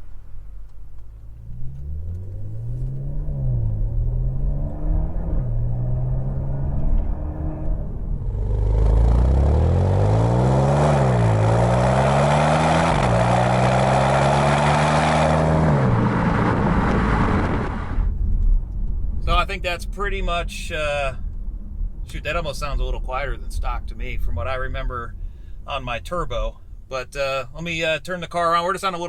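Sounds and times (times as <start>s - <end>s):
car accelerating through gears: 1.3s - 18.1s.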